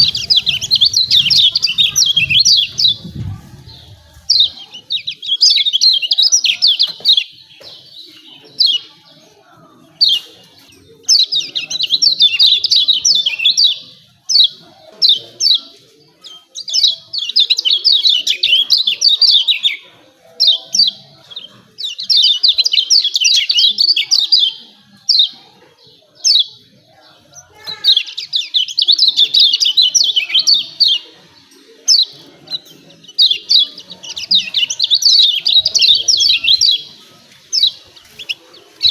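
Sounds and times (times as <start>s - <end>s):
sharp bird notes: 0.0s - 4.6s
bird chattering chirps: 0.0s - 7.3s.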